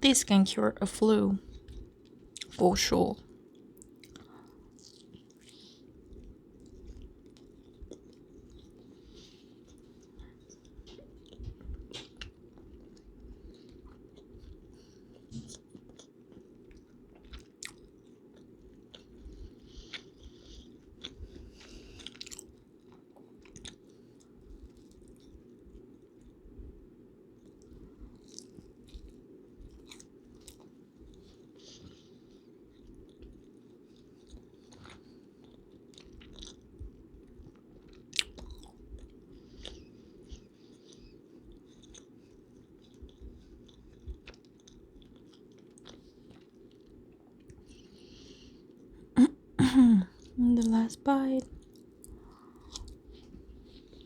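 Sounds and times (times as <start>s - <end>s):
low background hiss: 0.0s - 14.8s
low background noise: 0.0s - 54.0s
chewing and biting: 3.3s - 26.5s, 27.4s - 49.0s, 51.4s - 54.0s.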